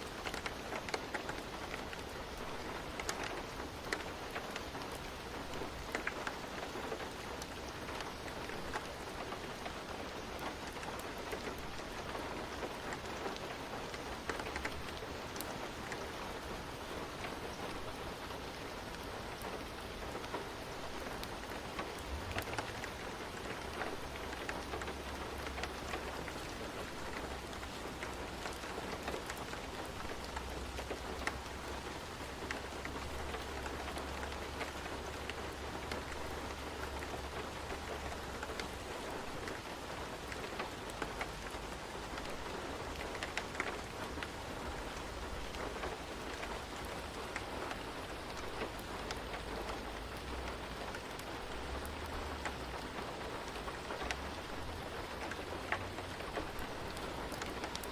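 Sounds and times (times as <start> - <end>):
rain falling: 0.0 - 57.9.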